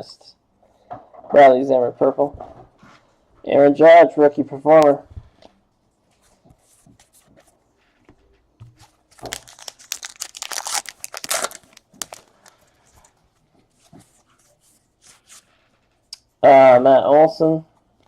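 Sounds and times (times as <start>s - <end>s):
wrapper tearing and crinkling: 9.1s - 12.6s.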